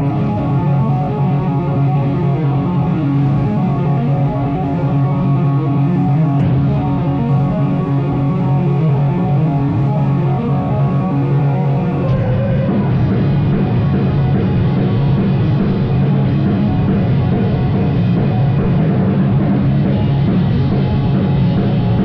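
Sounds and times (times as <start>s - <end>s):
electric guitar: 0.0s - 22.0s
live rock band playing: 0.0s - 22.0s.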